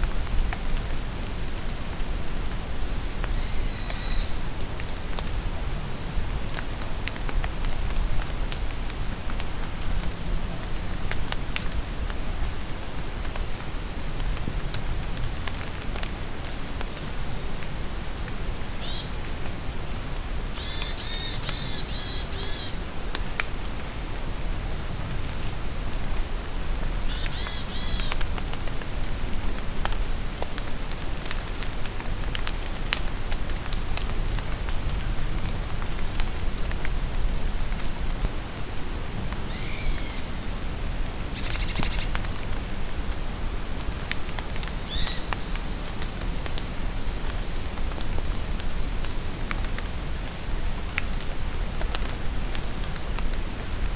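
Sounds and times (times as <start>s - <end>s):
rain falling in a forest: 0.0s - 53.9s
birds calling: 20.6s - 22.8s, 27.1s - 28.2s, 39.4s - 40.6s.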